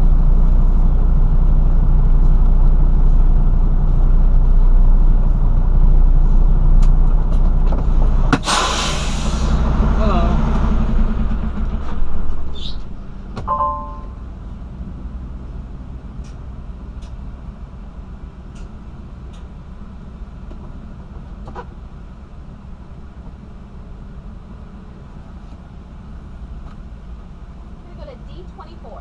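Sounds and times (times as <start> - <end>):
truck engine and road drone: 0.0 - 29.0
short electronic beep: 13.5 - 14.2.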